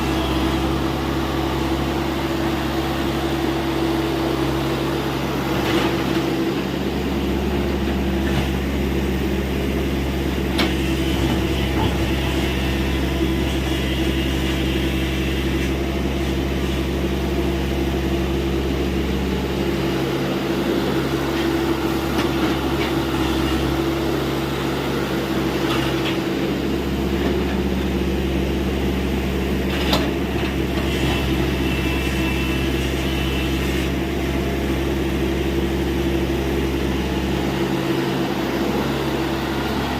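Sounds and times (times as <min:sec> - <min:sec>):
excavator diesel engine hum: 0:00.0 - 0:39.9.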